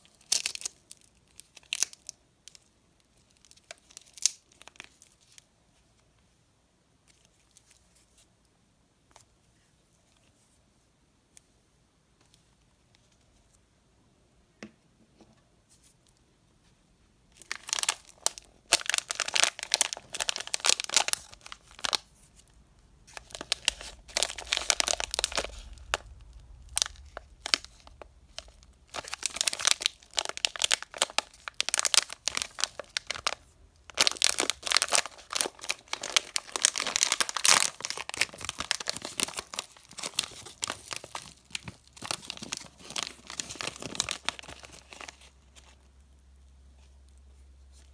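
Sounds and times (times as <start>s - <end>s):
candy wrapper crinkling: 0.0s - 5.4s, 17.3s - 46.0s.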